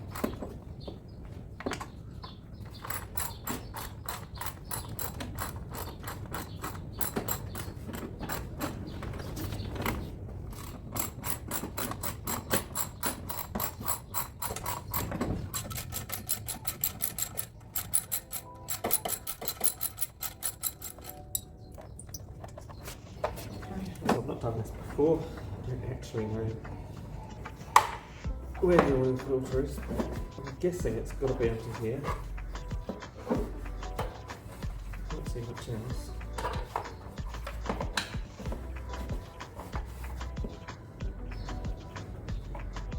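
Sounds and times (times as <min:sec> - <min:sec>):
ratchet wrench clicking: 0:02.8 - 0:07.7, 0:10.6 - 0:21.2.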